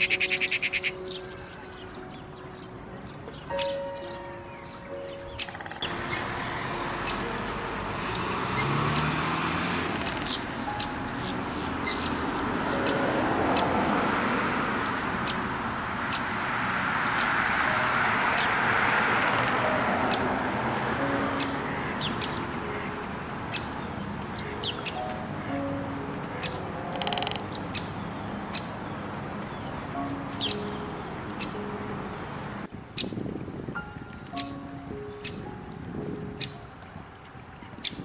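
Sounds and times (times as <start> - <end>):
high bird chirps: 0.0 - 9.4, 10.0 - 13.8, 21.1 - 22.9, 23.5 - 32.1, 33.0 - 36.7.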